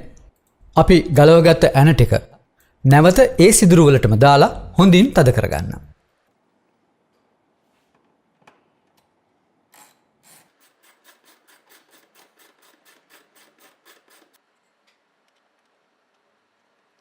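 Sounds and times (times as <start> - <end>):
wrench tightening strokes: 9.8 - 14.4.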